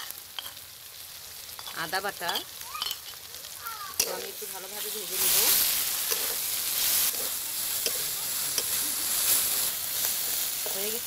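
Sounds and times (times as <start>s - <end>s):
paste sizzling in hot oil: 0.0s - 11.0s
metal spoon clinking on pan: 0.4s - 0.6s, 1.6s - 3.2s, 4.0s - 4.3s.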